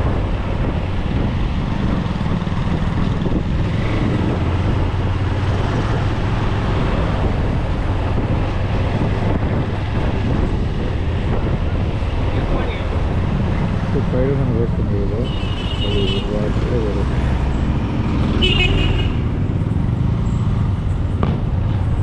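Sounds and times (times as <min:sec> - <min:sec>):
wind buffeting microphone: 0:00.0 - 0:15.3.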